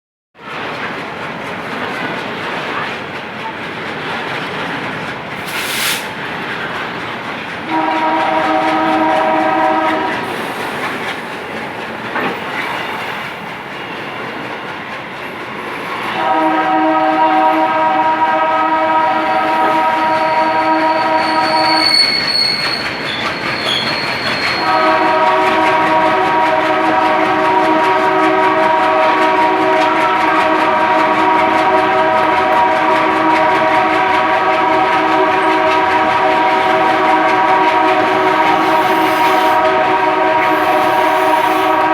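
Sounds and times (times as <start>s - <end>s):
moving train rumble and clatter: 0.4s - 41.9s
locomotive horn multi-tone chord: 7.7s - 10.3s, 16.2s - 21.9s, 24.6s - 41.9s.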